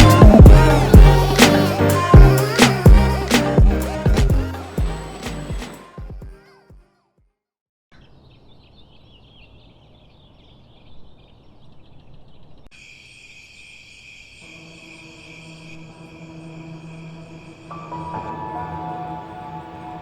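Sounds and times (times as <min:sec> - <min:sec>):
low sustained music drone: 0:00.0 - 0:05.7
high wavering chirps: 0:00.0 - 0:06.0
steady high tones: 0:00.0 - 0:06.0
music: 0:00.0 - 0:06.6, 0:17.7 - 0:20.0.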